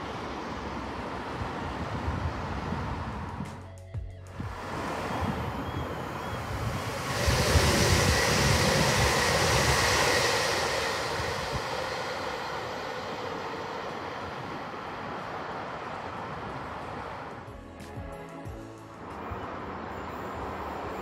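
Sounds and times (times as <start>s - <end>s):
diesel train passing: 0.0s - 21.0s.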